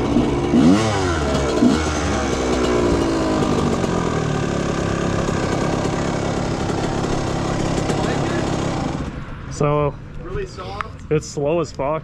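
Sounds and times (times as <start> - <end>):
two-stroke engine idling: 0.0 - 9.1.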